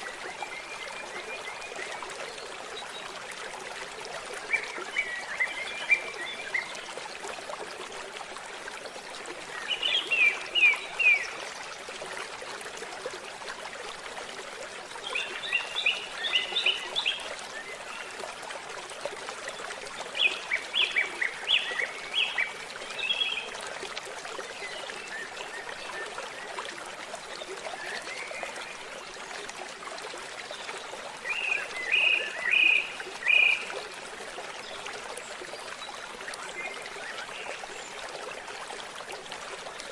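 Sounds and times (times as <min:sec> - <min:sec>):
water trickling: 0:00.0 - 0:39.9
bird song: 0:09.5 - 0:11.4, 0:15.0 - 0:18.2, 0:20.2 - 0:23.5, 0:30.5 - 0:33.8.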